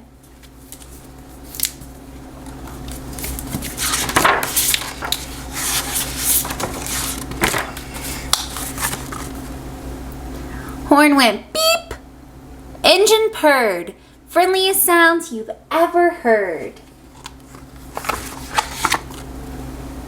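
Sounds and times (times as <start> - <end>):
paper rustling: 0.2 - 9.5, 17.1 - 19.3.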